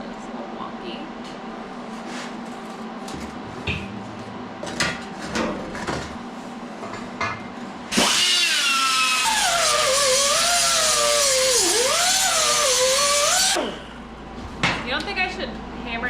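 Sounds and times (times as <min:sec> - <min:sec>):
power grinder on steel: 0:07.9 - 0:13.8.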